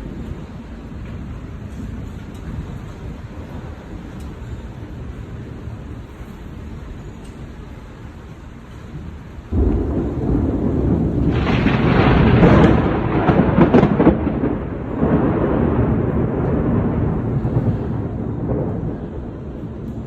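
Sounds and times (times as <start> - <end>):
thunder crack and rumble: 8.6 - 20.0.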